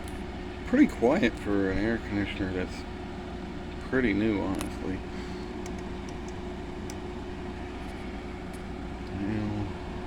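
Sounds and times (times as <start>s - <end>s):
air conditioner hum: 0.0s - 10.0s.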